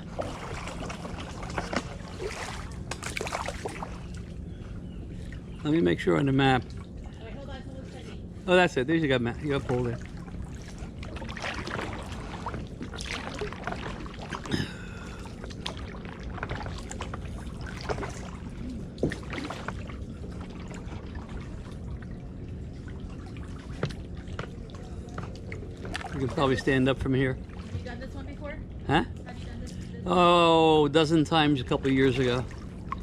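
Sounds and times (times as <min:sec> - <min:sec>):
paddles dipping into water: 0:00.0 - 0:05.8, 0:09.5 - 0:28.0, 0:31.8 - 0:33.0.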